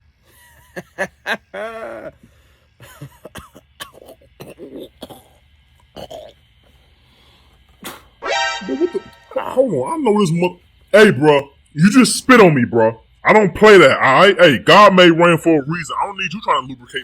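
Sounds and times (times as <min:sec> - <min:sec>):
man coughing and hawking: 0:00.6 - 0:02.2, 0:02.8 - 0:05.4, 0:06.0 - 0:06.4.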